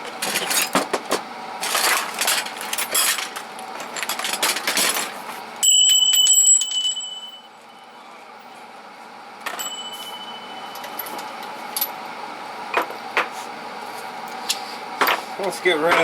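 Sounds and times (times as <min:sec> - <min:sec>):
bell-like ringing: 0:05.6 - 0:08.0, 0:09.5 - 0:11.1.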